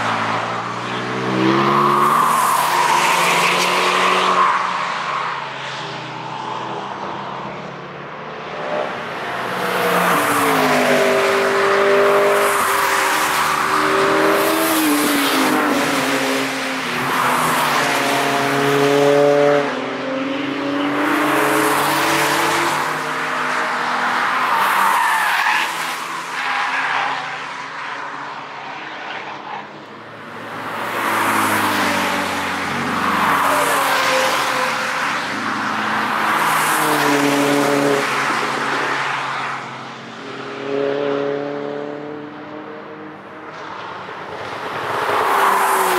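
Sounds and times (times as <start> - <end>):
cars accelerating past: 0.0 - 4.8, 30.5 - 45.9.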